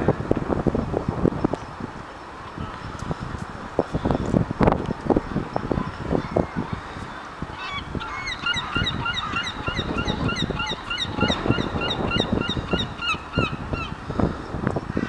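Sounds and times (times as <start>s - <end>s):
birds calling shrilly: 6.2s - 15.0s.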